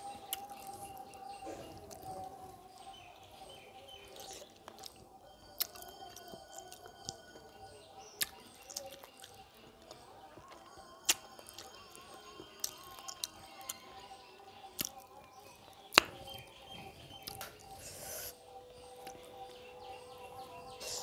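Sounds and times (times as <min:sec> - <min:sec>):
person chewing wetly: 0:04.1 - 0:05.0, 0:05.6 - 0:13.8, 0:14.7 - 0:15.1.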